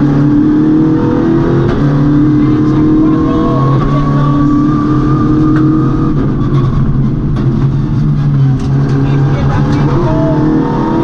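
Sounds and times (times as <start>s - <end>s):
rally car engine from inside cabin: 0.0s - 11.0s.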